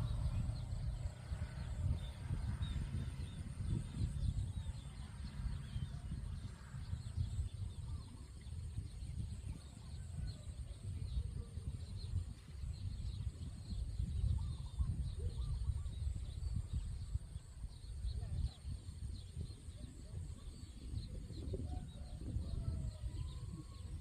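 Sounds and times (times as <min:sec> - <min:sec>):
loud low rumble: 0:00.0 - 0:07.7.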